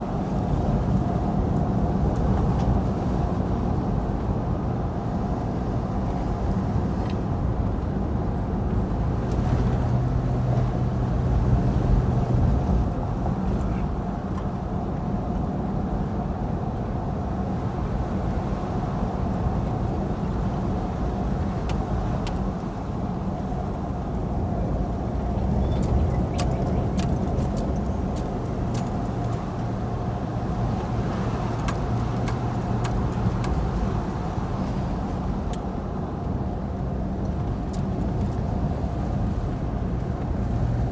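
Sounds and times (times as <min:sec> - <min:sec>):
vehicle engine and road hum: 0:00.0 - 0:40.9
light clicks and rattles: 0:25.8 - 0:29.6, 0:30.7 - 0:34.0.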